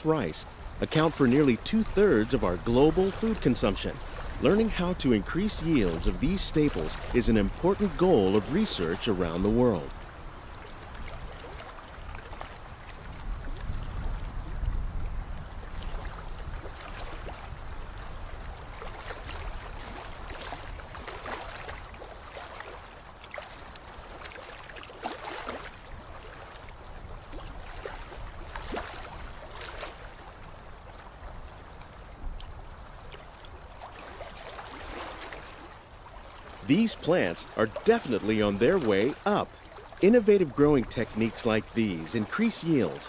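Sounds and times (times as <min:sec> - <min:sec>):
water lapping and trickling: 0:00.0 - 0:43.0
small splashes and drips: 0:09.9 - 0:36.7, 0:39.0 - 0:40.0.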